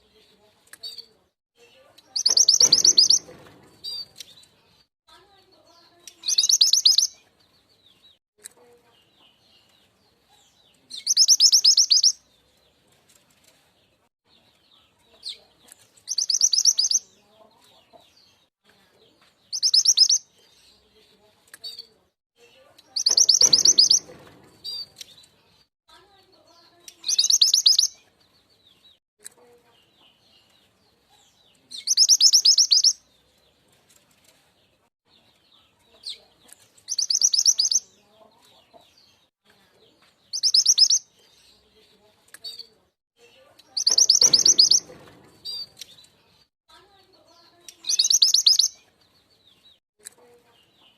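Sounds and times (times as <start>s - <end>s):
faint bird chirps: 0.8s - 4.3s, 5.6s - 7.2s, 10.3s - 12.2s, 16.1s - 17.8s, 19.5s - 20.9s, 21.6s - 24.9s, 26.4s - 28.0s, 31.1s - 33.0s, 35.5s - 38.6s, 40.3s - 46.4s, 47.2s - 48.8s
bird rattling trill: 2.2s - 4.1s, 23.0s - 24.9s, 43.8s - 45.8s.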